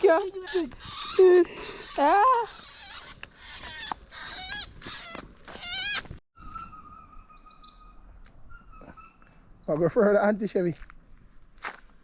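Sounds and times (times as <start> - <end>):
bird squawks: 0.4 - 9.3
faint high bird chirps: 6.4 - 10.0.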